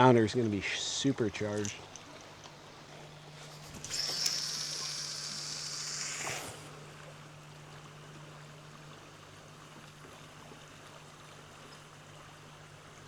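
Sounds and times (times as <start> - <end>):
river water flowing: 0.0 - 13.0
high-pitched hiss: 3.4 - 6.8.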